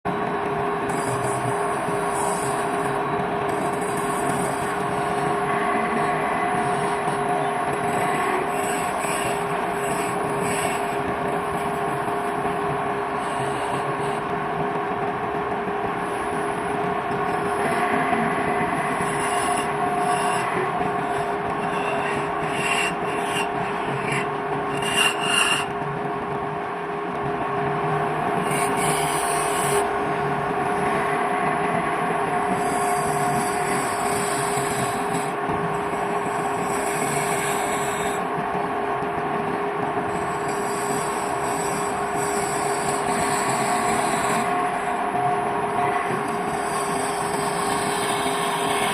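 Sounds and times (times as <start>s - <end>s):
wood lathe motor humming: 0.9s - 12.5s, 13.1s - 14.4s, 16.0s - 25.8s, 28.3s - 30.4s, 32.3s - 38.3s, 40.1s - 48.9s
turning tool scraping wood: 18.8s - 25.7s, 32.5s - 35.3s, 36.2s - 38.2s, 40.1s - 44.6s, 46.2s - 48.9s.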